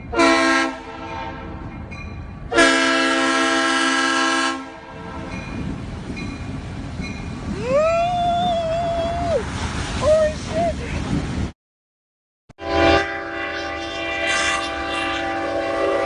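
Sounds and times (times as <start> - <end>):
train air horn blasts: 0.1 - 1.7, 2.5 - 5.3, 12.6 - 16.0
rising wail: 7.5 - 10.1.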